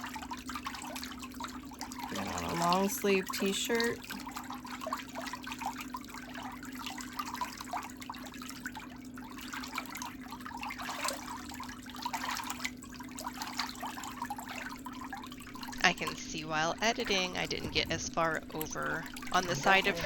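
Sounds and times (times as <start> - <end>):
water trickling and splashing: 0.0 - 20.0
low hum: 14.9 - 20.0.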